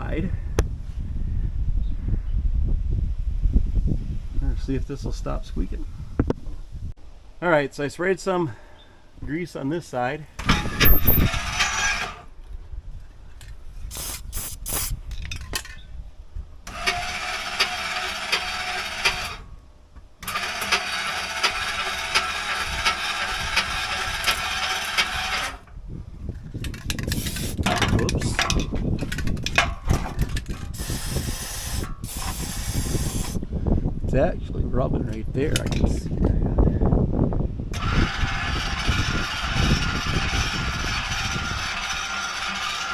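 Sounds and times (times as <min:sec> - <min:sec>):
landing gear drive whirring: 0:20.2 - 0:25.7, 0:37.7 - 0:42.9
metal clanks: 0:26.6 - 0:30.7.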